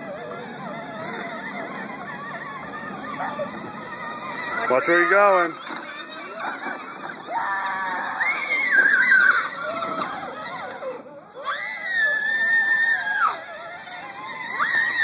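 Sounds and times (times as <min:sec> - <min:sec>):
dog whining: 0:00.0 - 0:04.8.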